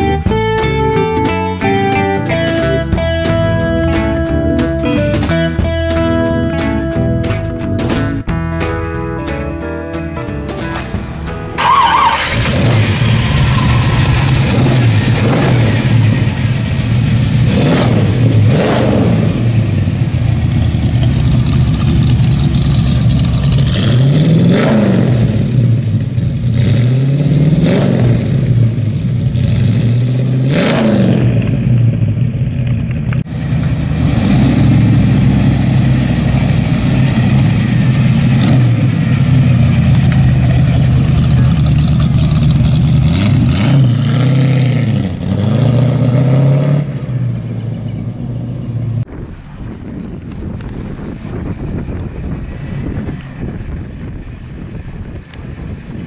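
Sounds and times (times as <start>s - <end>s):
car engine idling: 10.6s - 26.7s, 31.3s - 44.2s, 47.2s - 56.0s
engine revving: 10.8s - 47.8s.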